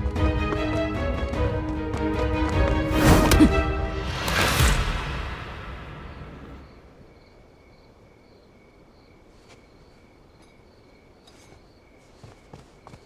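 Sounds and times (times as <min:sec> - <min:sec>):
music: 0:00.0 - 0:06.6
crickets chirping: 0:05.0 - 0:13.0.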